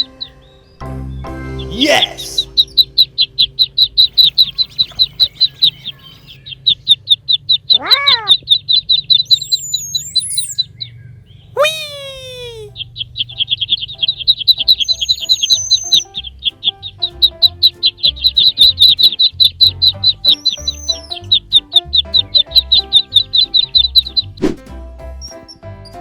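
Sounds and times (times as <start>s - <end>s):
light background music: 0.0s - 6.3s, 12.7s - 26.0s
high-pitched bird chirping: 0.0s - 24.5s, 25.2s - 26.0s
swooping sound effect: 24.4s - 24.6s.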